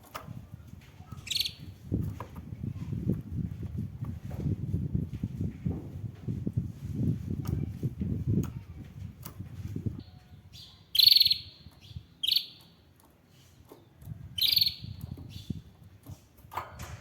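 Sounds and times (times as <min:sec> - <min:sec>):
canary trilled chirps: 0:01.2 - 0:01.7, 0:10.0 - 0:12.8, 0:14.4 - 0:15.6
rustling and bumping: 0:01.8 - 0:10.0.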